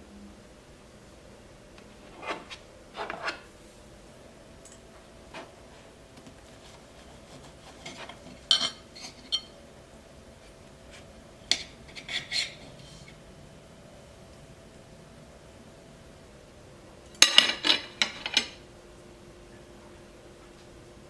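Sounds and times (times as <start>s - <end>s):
cutlery clinking against a plate: 7.4s - 9.5s, 10.9s - 13.1s, 17.2s - 18.6s.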